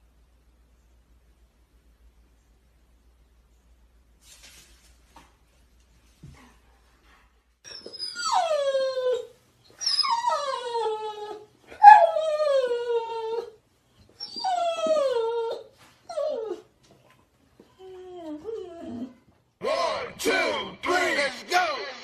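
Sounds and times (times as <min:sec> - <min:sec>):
dog whining: 0:07.6 - 0:17.0, 0:17.6 - 0:19.3.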